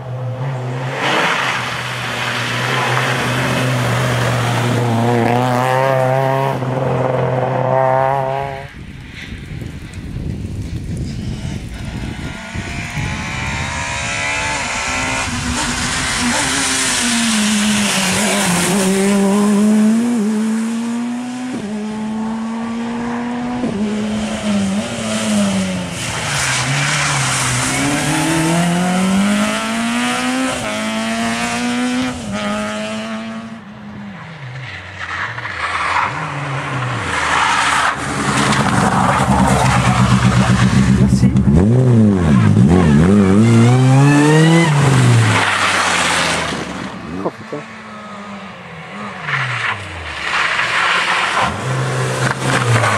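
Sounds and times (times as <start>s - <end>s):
rally car engine at full throttle: 0.0s - 52.9s
another engine rising in pitch: 37.9s - 45.4s.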